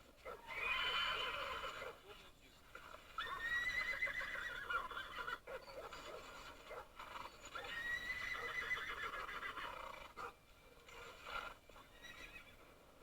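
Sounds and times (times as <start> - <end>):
animal high-pitched cries: 0.3 - 1.9.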